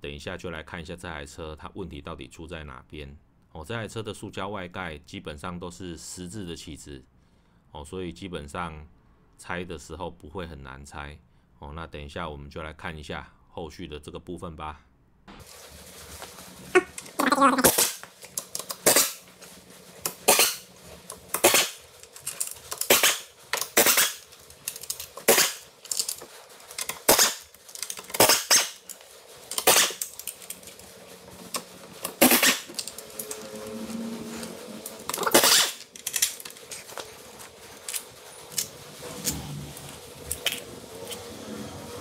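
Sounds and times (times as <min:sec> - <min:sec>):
tools and parts clinking: 0:17.8 - 0:19.2, 0:20.0 - 0:33.7, 0:34.4 - 0:41.2.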